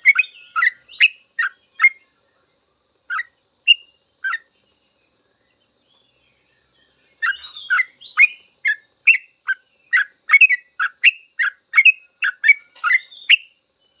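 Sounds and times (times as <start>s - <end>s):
bulbul chirpy song: 0.0s - 2.1s, 3.0s - 4.8s, 7.2s - 13.7s.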